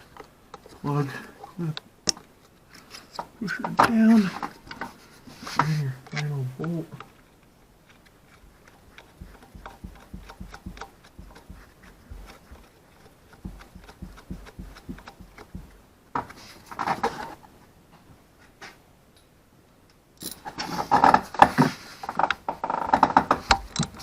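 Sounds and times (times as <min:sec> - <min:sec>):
rustling: 0:00.0 - 0:18.8
hand ratchet clicking: 0:08.6 - 0:15.8
light knocks: 0:13.4 - 0:15.8.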